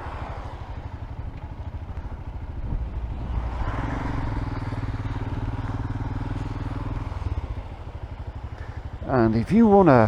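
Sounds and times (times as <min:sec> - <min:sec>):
motorcycle engine running: 0:00.0 - 0:10.0
road noise: 0:00.0 - 0:10.0
wind noise: 0:01.9 - 0:05.9.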